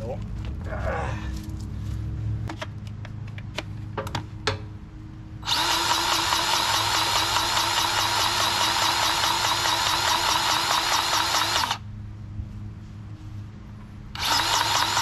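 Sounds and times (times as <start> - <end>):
grease gun pump pulsing: 5.4 - 11.8, 14.2 - 15.0.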